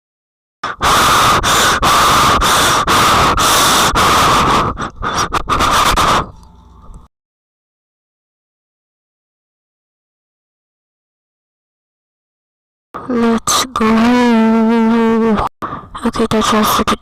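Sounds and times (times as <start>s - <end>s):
harsh scratching on microphone: 0.7s - 6.4s, 13.1s - 17.0s.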